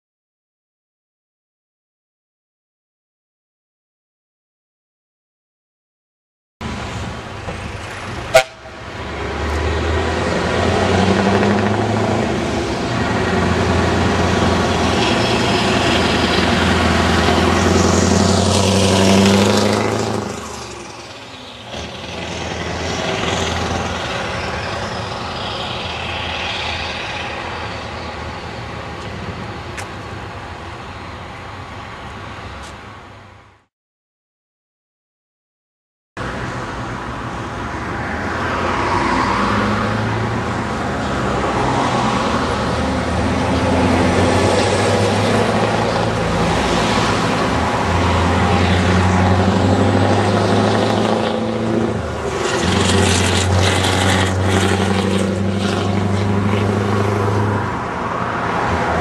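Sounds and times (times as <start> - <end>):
truck engine driving past: 6.6 - 32.6, 36.2 - 59.0.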